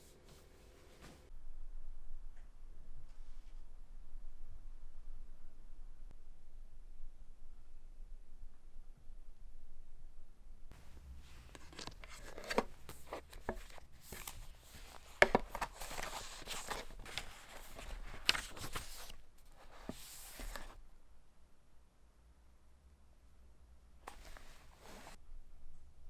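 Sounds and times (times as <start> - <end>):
rustling: 10.8 - 20.8.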